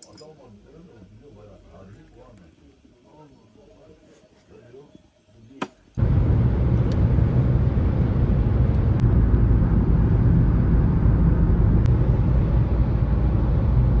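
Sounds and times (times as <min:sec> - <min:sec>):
vehicle engine rumble: 0:06.0 - 0:14.0.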